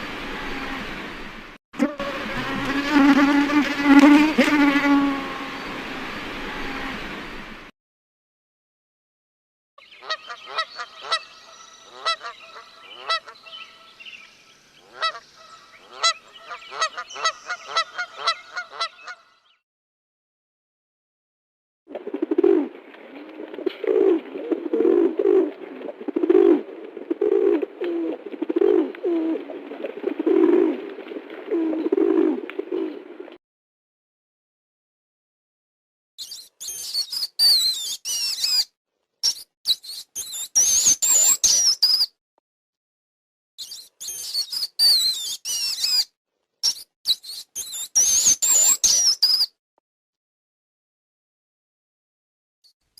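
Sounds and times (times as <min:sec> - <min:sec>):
geese honking: 0:11.9 - 0:13.4, 0:14.9 - 0:19.2.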